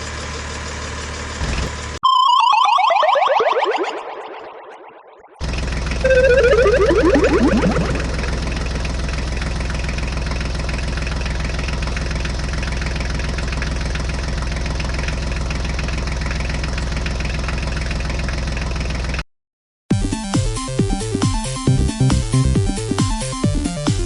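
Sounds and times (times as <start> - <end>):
heavy engine idling with knocking: 0.0 - 2.0, 8.1 - 19.2
falling whistle-like glide: 2.0 - 5.4, 6.0 - 8.7.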